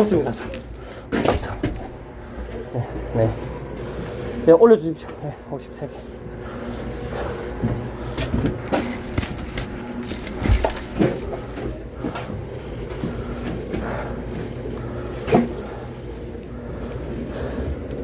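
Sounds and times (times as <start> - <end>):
steady low hum: 0.0 - 18.0
firewood knocking and clattering: 8.2 - 11.4.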